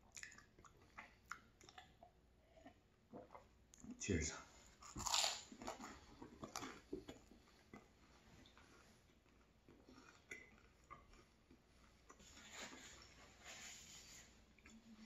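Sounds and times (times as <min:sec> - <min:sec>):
close-mouthed chewing: 0:00.0 - 0:04.0, 0:04.8 - 0:13.2
wet mouth clicks: 0:00.1 - 0:03.3.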